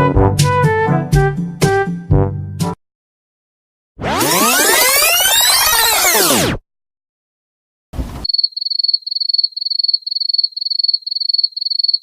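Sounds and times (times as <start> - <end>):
cricket chirping: 8.2 - 12.0.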